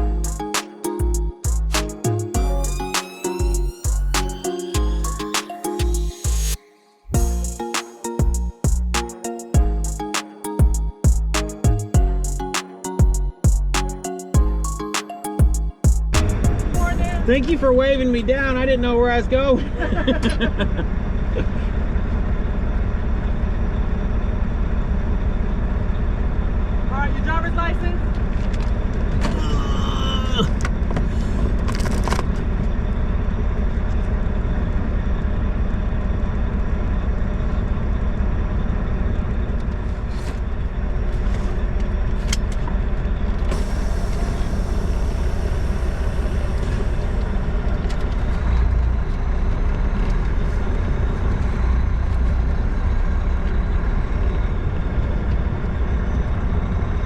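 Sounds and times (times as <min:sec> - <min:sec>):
truck engine running: 0:00.0 - 0:06.5, 0:43.5 - 0:55.6
hiss: 0:43.5 - 0:47.4.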